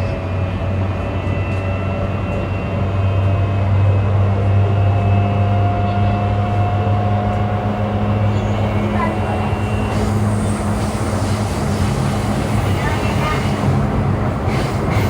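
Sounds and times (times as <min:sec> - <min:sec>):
electric train rumble and hum: 0:00.0 - 0:15.0
train motor whine: 0:06.5 - 0:15.0.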